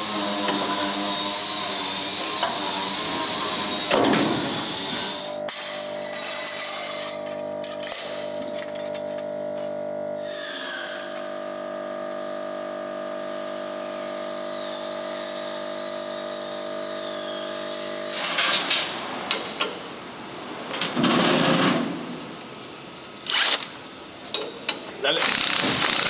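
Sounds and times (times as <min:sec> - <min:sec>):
power tool burst: 0:25.2 - 0:26.0.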